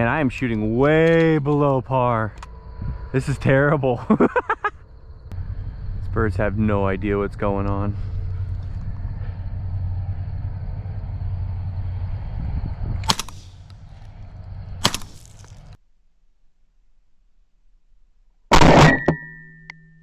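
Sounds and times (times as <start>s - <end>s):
low rumble: 0.0s - 15.8s
shotgun shots: 13.0s - 13.7s, 14.8s - 15.5s, 18.5s - 19.1s.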